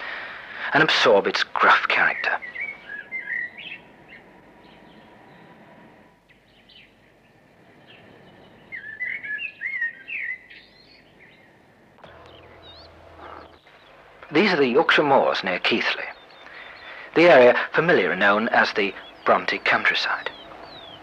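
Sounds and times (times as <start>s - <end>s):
small birds chirping and twittering: 0.0s - 21.0s.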